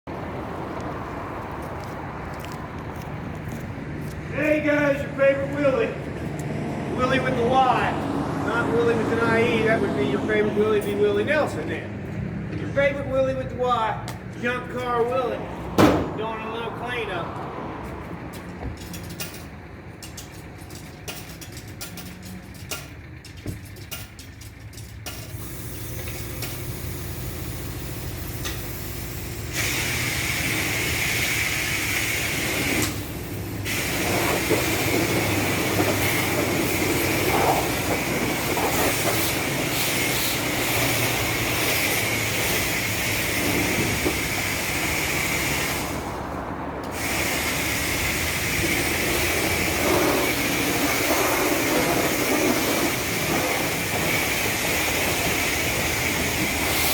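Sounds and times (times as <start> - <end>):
pressure washer spray hissing: 25.4 - 32.9, 33.6 - 46.1, 46.9 - 56.9.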